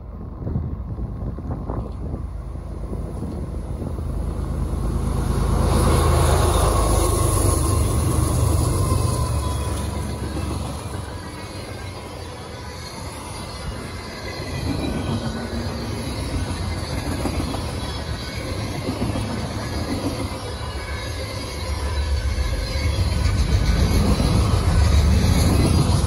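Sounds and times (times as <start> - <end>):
thin high wheel squeal: 5.9 - 26.0.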